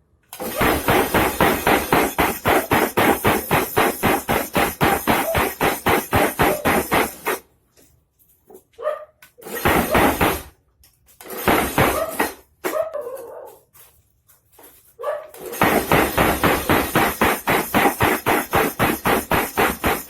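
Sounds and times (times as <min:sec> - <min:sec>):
power hammer striking hot steel: 0:00.4 - 0:07.4, 0:09.5 - 0:10.5, 0:11.3 - 0:12.4, 0:15.4 - 0:20.0.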